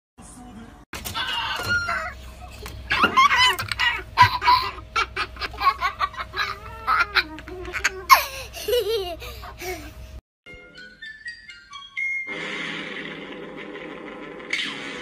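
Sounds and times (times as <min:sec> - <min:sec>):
cockatoo laugh-like cries: 0:02.9 - 0:10.0.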